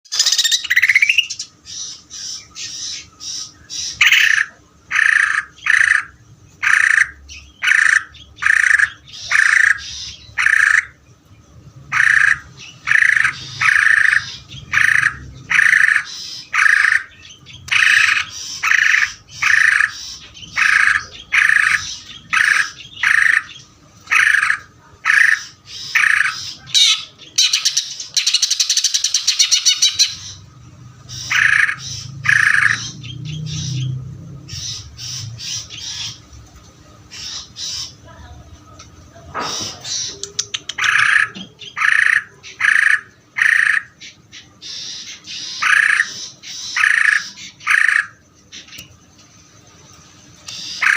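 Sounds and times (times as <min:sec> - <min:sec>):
bird singing harsh notes: 0:00.0 - 0:11.0, 0:11.9 - 0:36.2.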